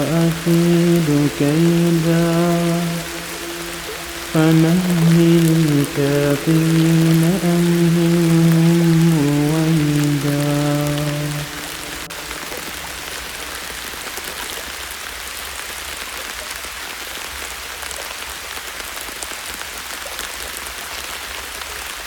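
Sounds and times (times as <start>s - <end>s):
soft rain pattering: 0.0s - 22.0s.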